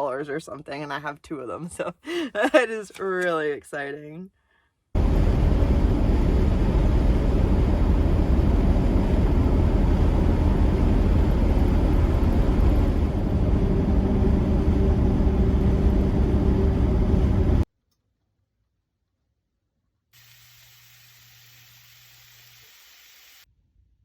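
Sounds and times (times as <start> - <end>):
vehicle engine and road noise: 5.0 - 17.7.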